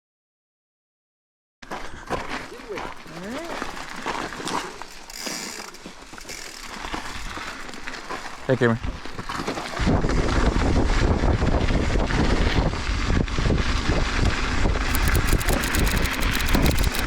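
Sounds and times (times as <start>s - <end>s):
bike rolling over rough ground: 1.7s - 14.2s
wind buffeting microphone: 9.8s - 16.8s
rapid clicking and rattling: 14.9s - 17.0s.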